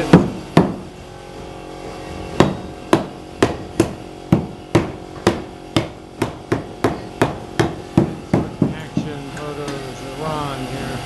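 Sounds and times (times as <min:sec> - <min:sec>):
hammer driving nails: 0:02.4 - 0:09.8.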